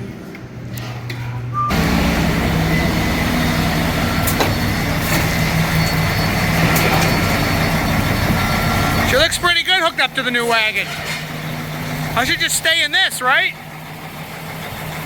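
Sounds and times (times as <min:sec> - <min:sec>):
low hum: 0:00.0 - 0:09.6
diesel engine running: 0:00.0 - 0:15.0.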